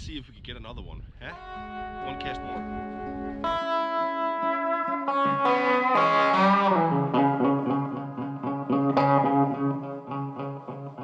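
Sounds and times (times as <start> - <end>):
steady bass line: 1.3 - 9.8
plucked electric guitar: 1.3 - 11.0.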